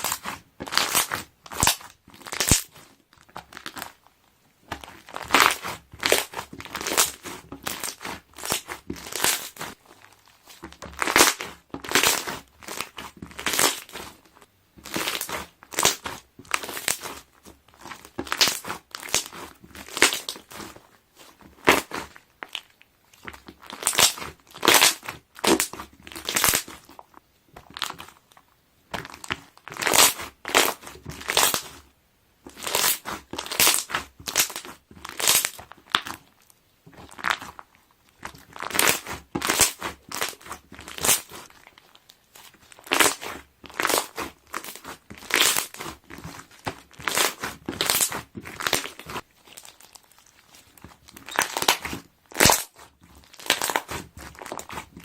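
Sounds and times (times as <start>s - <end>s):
slime squeezed by hand: 4.8s - 14.2s, 14.8s - 27.0s, 37.0s - 55.0s.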